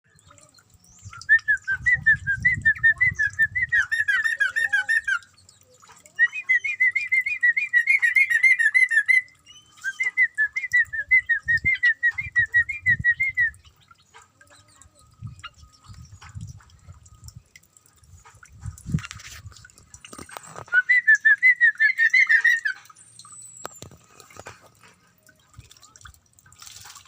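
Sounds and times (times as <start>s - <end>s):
bird singing whistled notes: 0.1s - 14.0s, 20.1s - 24.0s.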